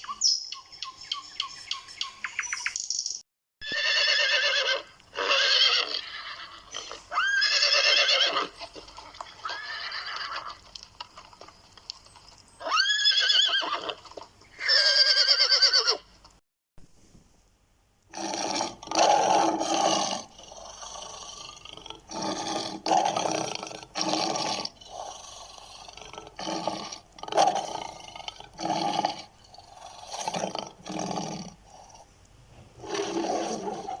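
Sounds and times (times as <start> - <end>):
big cat roaring and growling: 18.1 - 31.6, 32.8 - 34.0.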